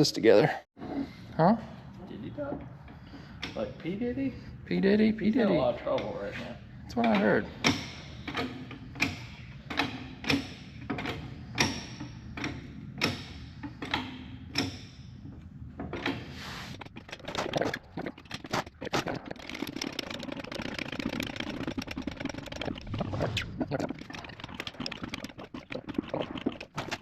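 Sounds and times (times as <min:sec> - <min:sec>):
irregular clatter: 0:06.9 - 0:27.0.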